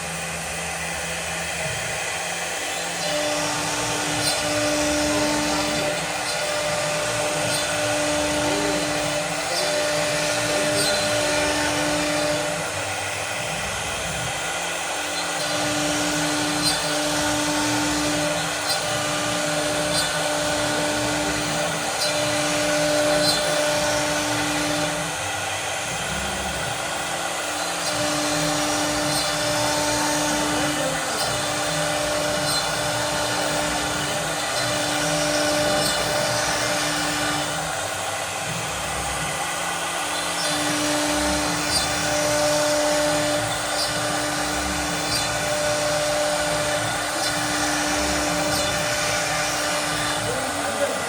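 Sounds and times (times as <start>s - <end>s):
cnc machine hissing: 0.0s - 51.0s
motor humming: 0.0s - 51.0s.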